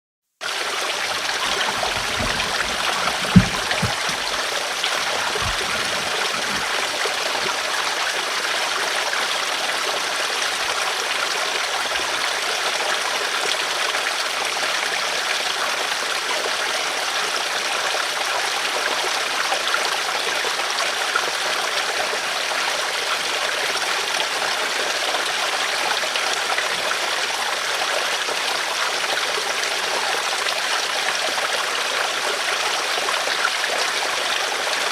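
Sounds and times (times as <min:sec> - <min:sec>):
river water flowing over rocks: 0:00.5 - 0:17.9
low thumps: 0:01.2 - 0:04.4.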